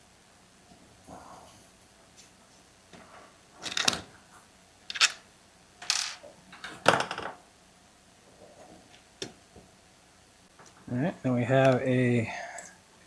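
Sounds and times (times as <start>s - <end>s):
metal parts clattering on hard surface: 5.8s - 6.2s.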